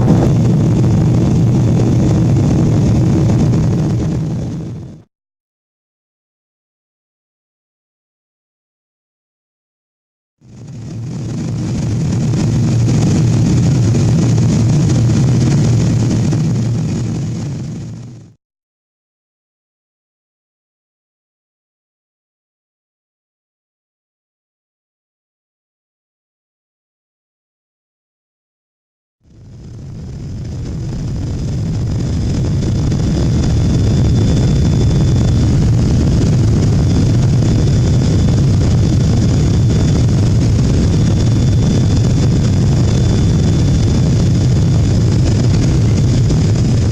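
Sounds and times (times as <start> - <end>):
airliner cabin engine drone: 0.0 - 5.1, 10.4 - 18.4, 29.3 - 46.9
faint high whine: 0.0 - 5.1, 29.3 - 46.9.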